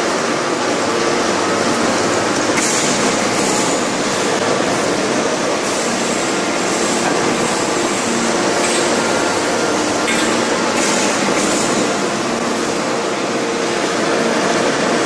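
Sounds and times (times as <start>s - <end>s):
forging press mechanical din: 2.5s - 12.2s.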